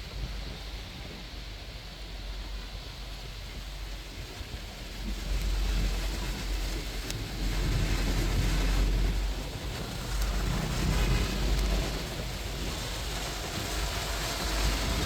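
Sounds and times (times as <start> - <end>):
rain hiss: 0.0 - 15.0
wind buffeting microphone: 0.0 - 15.0
road noise: 3.4 - 15.0.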